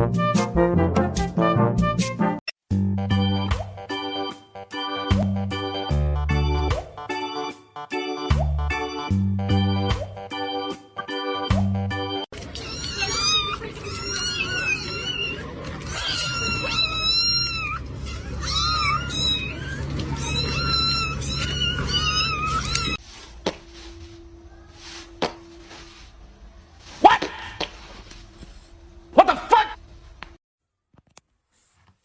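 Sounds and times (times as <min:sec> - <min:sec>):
cat meowing: 0:12.6 - 0:23.0
low steady hum: 0:23.0 - 0:27.0.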